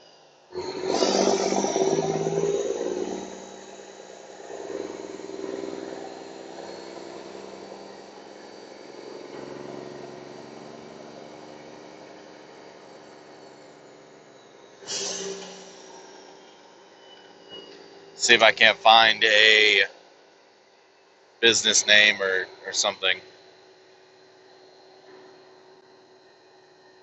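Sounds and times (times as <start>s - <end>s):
truck diesel engine running: 1.0s - 14.4s.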